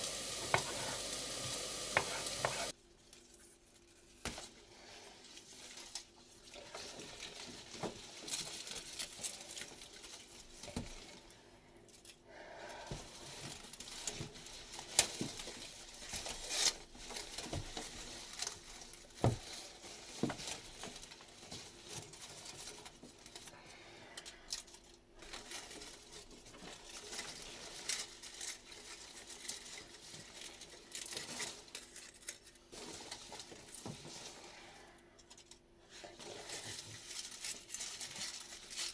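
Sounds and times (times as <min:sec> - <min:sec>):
rustling and crinkling: 0:00.0 - 0:38.9.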